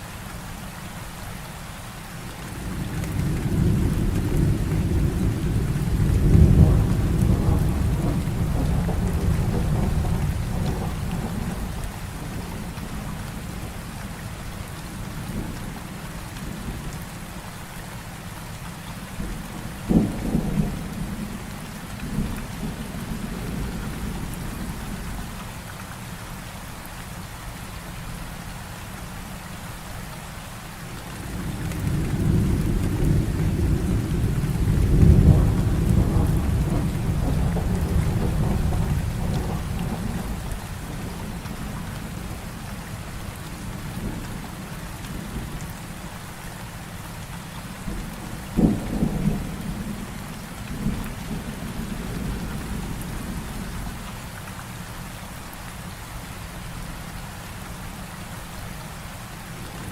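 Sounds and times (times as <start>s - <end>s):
heavy rain: 0.0s - 59.9s
rolling rumble of thunder: 2.5s - 13.8s, 19.2s - 25.3s, 31.2s - 45.7s, 47.8s - 54.0s
sharp crack of thunder: 2.7s - 11.7s, 31.3s - 41.4s, 47.9s - 53.5s.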